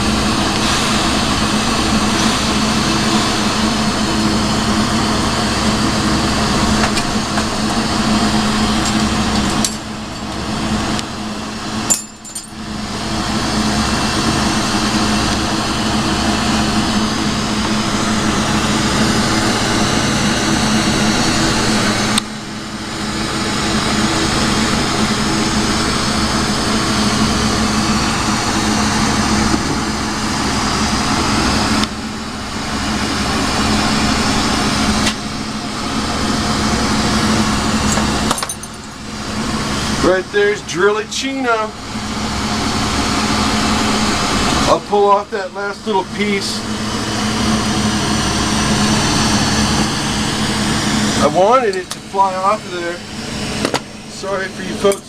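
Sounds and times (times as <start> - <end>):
torch hissing: 0.0 - 9.6.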